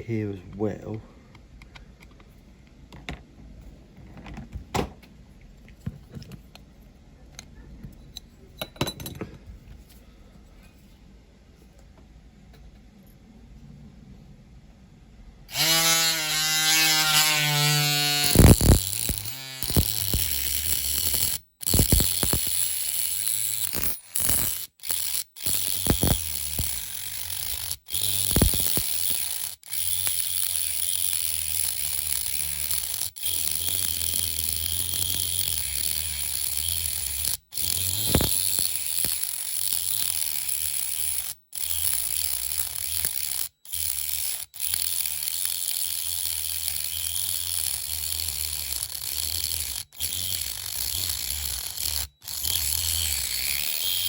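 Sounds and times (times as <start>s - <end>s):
rotary tool cutting metal: 15.5s - 54.0s.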